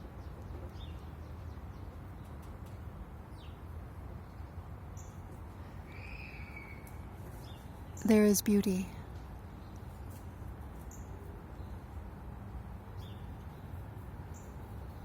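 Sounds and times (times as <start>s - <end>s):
long steady bird call: 4.3s - 8.4s
bird chirps: 5.9s - 8.2s.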